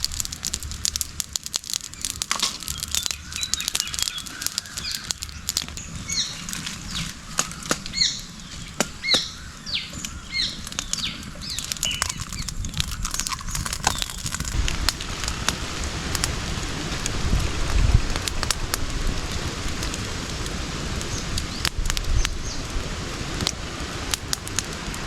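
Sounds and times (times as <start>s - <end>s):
sharp crackling pops: 0.0s - 25.0s
steady hiss: 0.0s - 25.0s
bird chirping: 1.8s - 14.6s.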